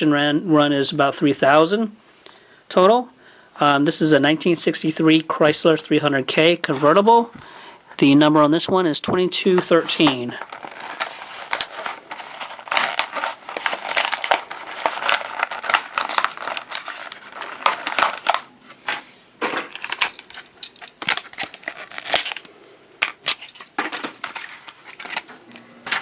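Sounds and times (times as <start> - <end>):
blister packaging crackling: 9.6 - 26.0.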